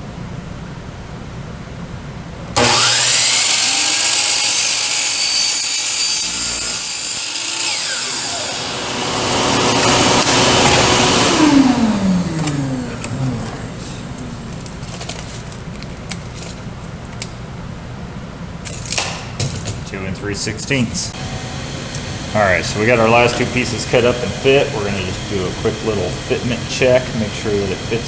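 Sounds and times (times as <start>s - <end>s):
electric saw cutting plexiglass: 2.6s - 15.7s, 21.1s - 28.0s.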